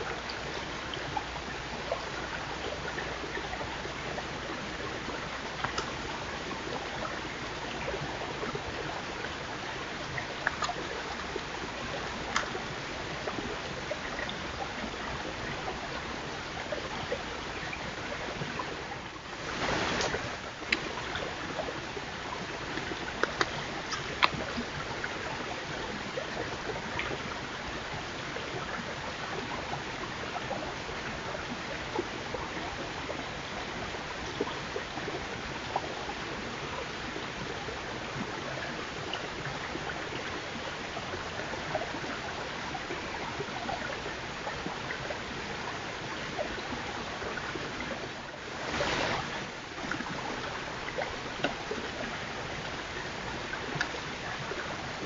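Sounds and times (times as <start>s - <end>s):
outdoor hiss: 19.4s - 20.8s.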